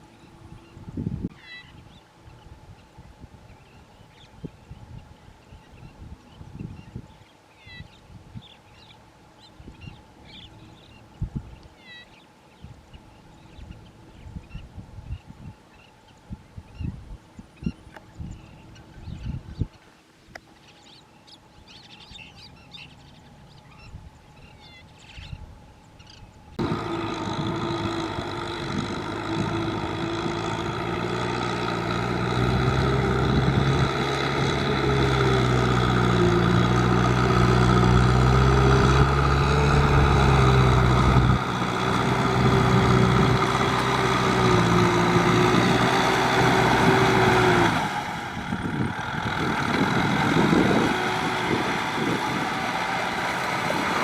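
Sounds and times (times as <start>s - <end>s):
tractor engine running under load: 26.6s - 54.0s.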